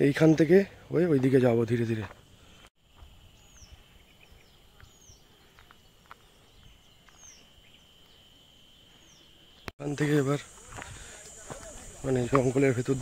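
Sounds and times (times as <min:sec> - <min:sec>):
bird chirping: 0:03.3 - 0:09.7.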